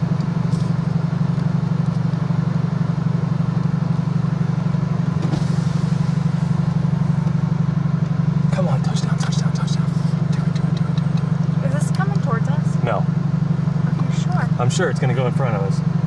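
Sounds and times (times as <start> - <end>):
car engine droning inside car: 0.0 - 16.0.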